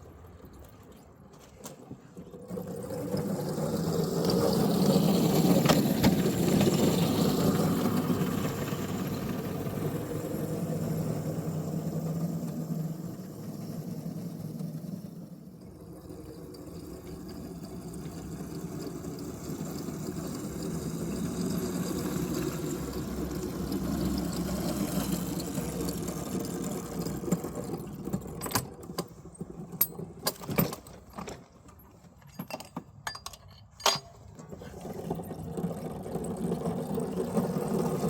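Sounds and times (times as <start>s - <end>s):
electric locomotive running on rails: 2.5s - 30.4s
metallic clanks and clicks: 28.1s - 34.6s.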